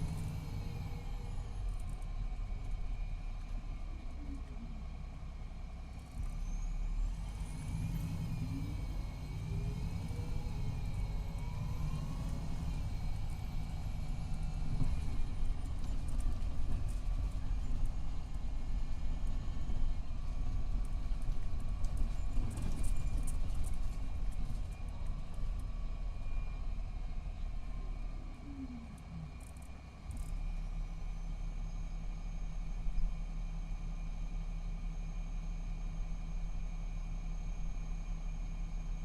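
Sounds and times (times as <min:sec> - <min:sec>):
bus diesel engine: 0:00.0 - 0:39.0.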